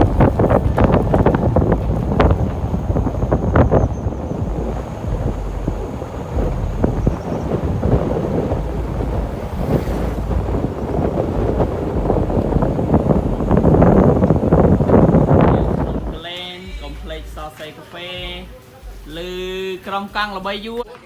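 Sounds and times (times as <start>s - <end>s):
wind buffeting microphone: 0.0s - 17.6s.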